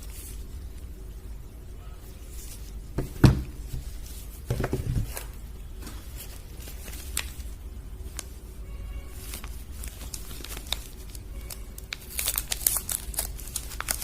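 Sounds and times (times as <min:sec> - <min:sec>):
soap bar thump: 0:03.0 - 0:03.5.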